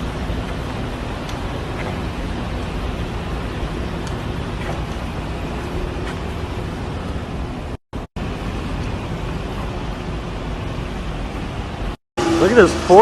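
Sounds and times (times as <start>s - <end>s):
moving vehicle road noise: 0.0s - 13.0s.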